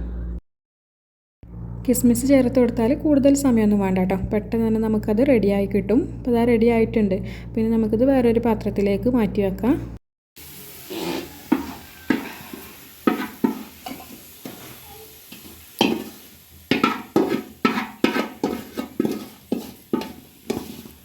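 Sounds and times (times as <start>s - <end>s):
faint oil sizzle: 10.4s - 21.0s
metal spoon scraping a pan: 10.7s - 21.0s.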